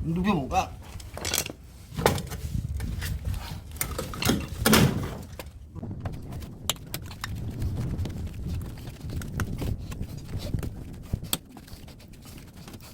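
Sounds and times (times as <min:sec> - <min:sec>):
sheet-metal casing clanking and scraping: 0:01.0 - 0:06.4.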